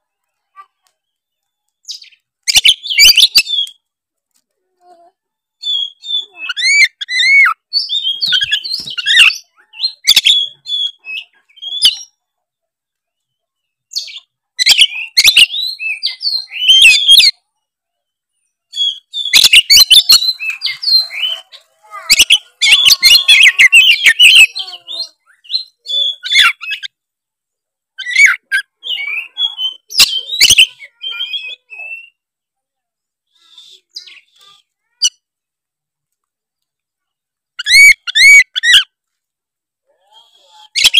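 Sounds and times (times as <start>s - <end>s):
bird song with rapid whistles: 1.8s - 3.8s, 5.6s - 12.2s, 13.9s - 17.4s, 18.7s - 21.5s, 22.1s - 26.9s, 28.0s - 32.2s, 37.6s - 38.9s.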